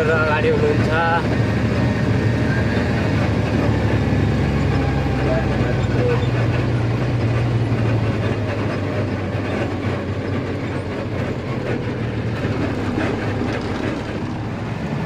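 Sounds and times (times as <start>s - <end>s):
truck engine drone: 0.0s - 15.0s
clattering rattle: 12.4s - 14.8s.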